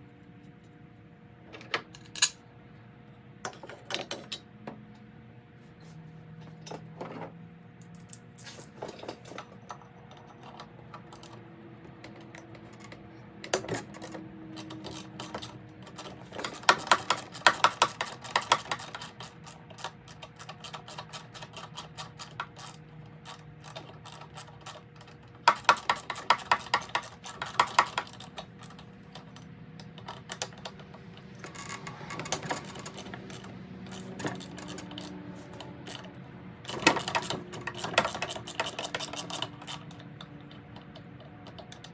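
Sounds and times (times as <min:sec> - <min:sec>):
hand tools clicking: 0:13.5 - 0:41.9.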